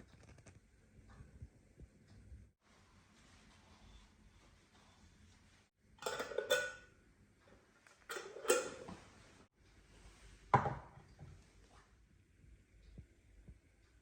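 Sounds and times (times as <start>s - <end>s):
dishes clinking and knocking: 6.0s - 6.9s, 8.1s - 9.0s.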